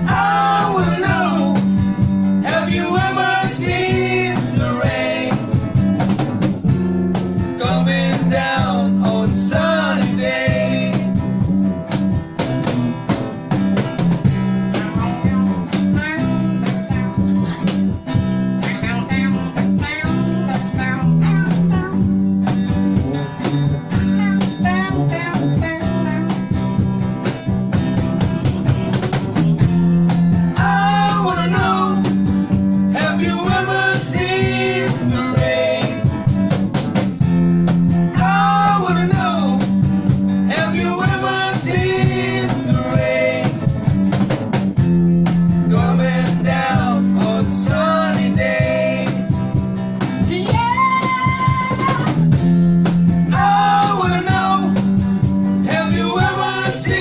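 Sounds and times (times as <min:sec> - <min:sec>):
person singing: 0:00.0 - 0:01.7, 0:02.4 - 0:05.5, 0:07.6 - 0:11.1, 0:30.6 - 0:32.1, 0:33.0 - 0:36.1, 0:40.5 - 0:43.5, 0:53.3 - 0:54.8
blues rock band playing: 0:00.0 - 0:57.0.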